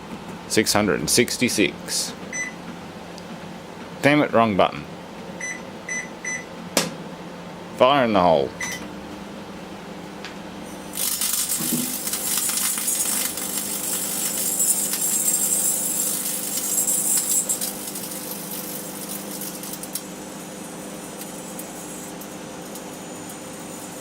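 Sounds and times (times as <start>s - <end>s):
microwave oven humming: 0.0s - 24.0s
electrical arc crackling: 10.9s - 24.0s.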